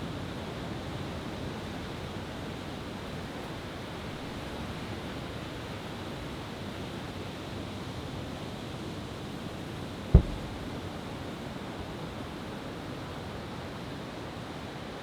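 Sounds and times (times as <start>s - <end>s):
firework boom: 10.2s - 10.9s.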